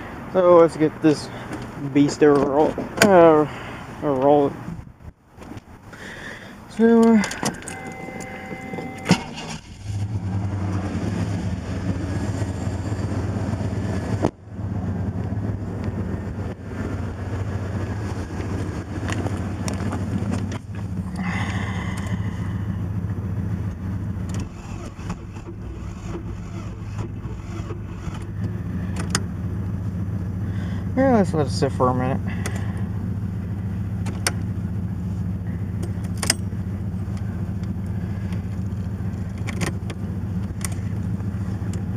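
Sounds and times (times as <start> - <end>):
starter cranking car engine: 6.7 - 10.8, 18.8 - 41.9.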